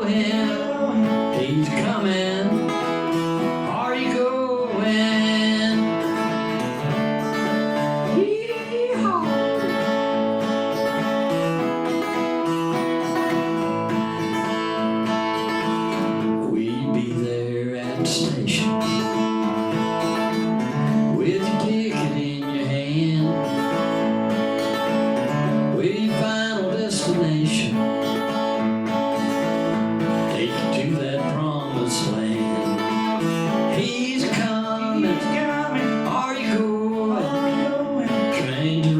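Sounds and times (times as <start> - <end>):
acoustic guitar picking and strumming: 0.0 - 38.9.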